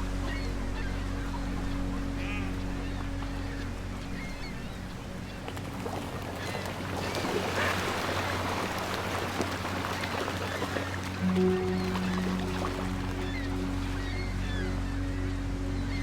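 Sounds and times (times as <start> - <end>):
soft background music: 0.0 - 16.0
wind: 0.0 - 16.0
seagull calls: 9.9 - 16.0.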